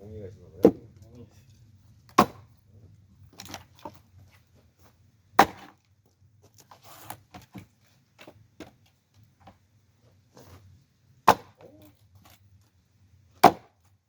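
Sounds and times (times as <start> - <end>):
axe chopping log: 2.1 - 2.5, 5.4 - 5.8, 11.2 - 11.7, 13.4 - 13.8.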